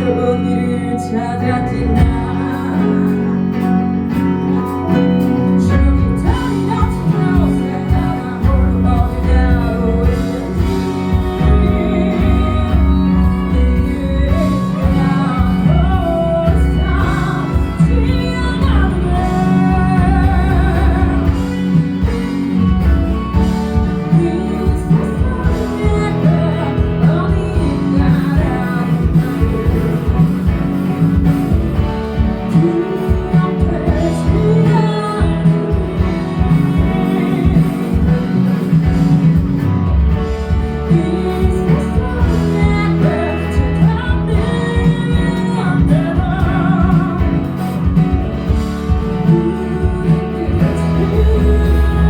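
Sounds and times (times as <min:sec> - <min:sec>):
bass: 0:00.0 - 0:52.0
guitar: 0:00.0 - 0:52.0
person singing: 0:00.0 - 0:52.0.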